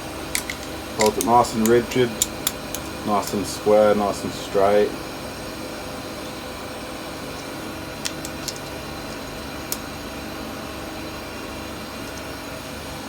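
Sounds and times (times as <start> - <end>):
background hum: 0.0 - 13.0
metallic clamp clicks: 0.3 - 3.0, 8.0 - 8.7.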